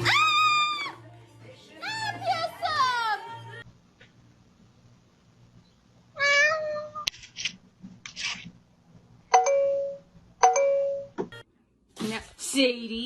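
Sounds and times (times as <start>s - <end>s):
cat meowing: 6.2s - 7.1s.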